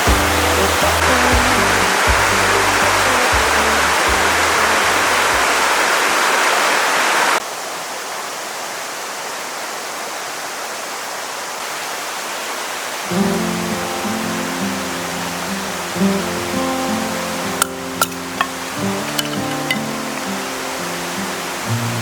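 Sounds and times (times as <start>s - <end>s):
background music: 0.0s - 5.5s, 13.2s - 22.0s
rushing outdoor noise: 0.0s - 22.0s.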